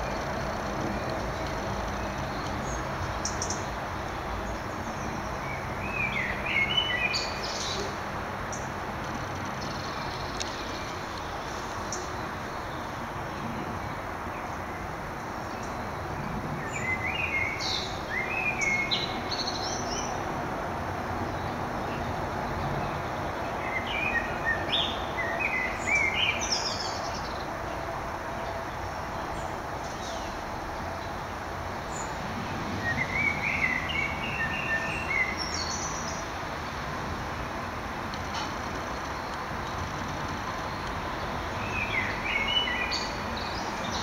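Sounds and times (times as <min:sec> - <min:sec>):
songbird chirping: 0:00.0 - 0:14.6, 0:15.4 - 0:20.3, 0:21.2 - 0:37.1, 0:38.1 - 0:44.0
steady background noise: 0:00.0 - 0:44.0.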